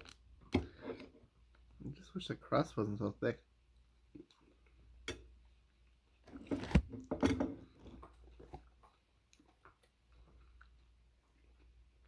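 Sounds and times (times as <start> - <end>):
quiet chewing and mouth sounds: 0.0 - 2.1, 3.6 - 6.3, 7.6 - 12.0.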